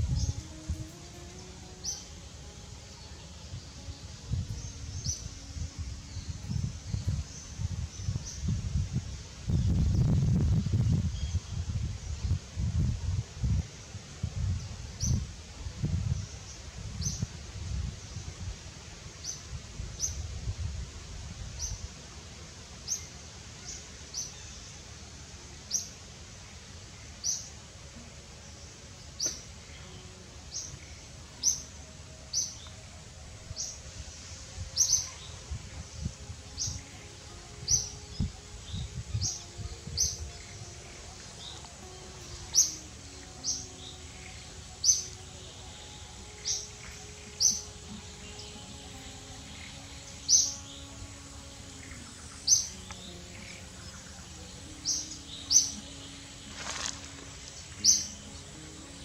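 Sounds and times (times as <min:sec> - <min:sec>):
bird chirping: 0:28.6 - 0:59.0.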